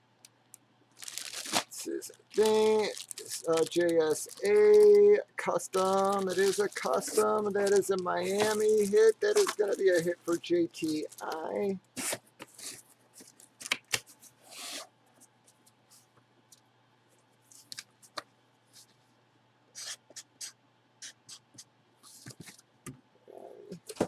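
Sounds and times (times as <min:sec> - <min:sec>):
packaging rustling: 0:00.9 - 0:14.8.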